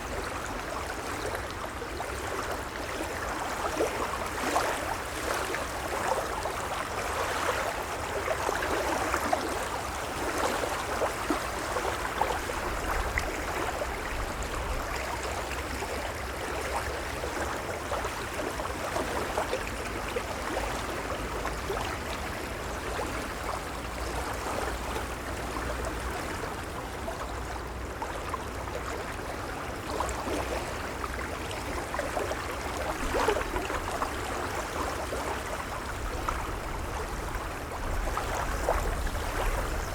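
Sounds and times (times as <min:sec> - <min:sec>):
gentle waves washing: 0:28.8 - 0:39.9.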